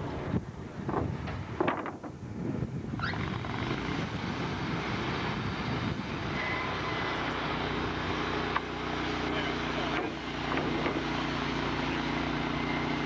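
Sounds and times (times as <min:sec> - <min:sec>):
sawmill engine drone: 0:03.1 - 0:13.0.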